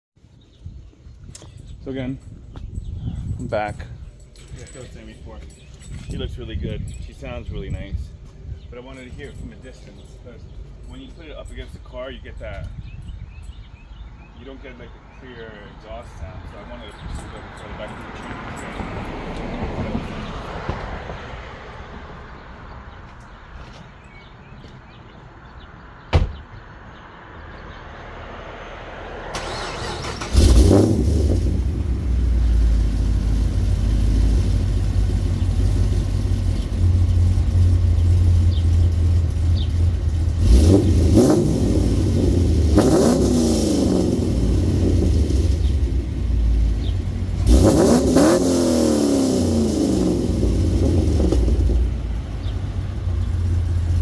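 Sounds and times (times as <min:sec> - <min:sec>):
thump: 0:20.6 - 0:21.0, 0:26.1 - 0:26.6
car engine idling and revving: 0:28.7 - 0:54.0.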